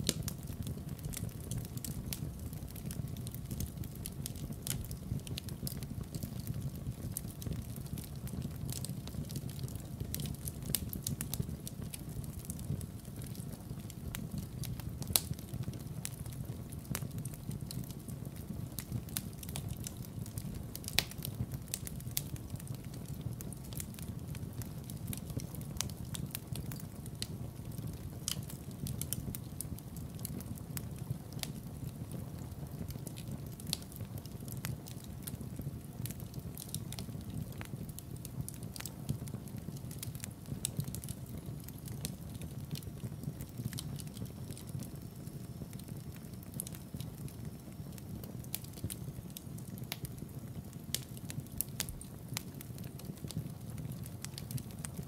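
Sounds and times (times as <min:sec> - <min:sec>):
logs crackling and popping: 0:00.0 - 0:55.0
low rumble of flames: 0:00.0 - 0:55.0.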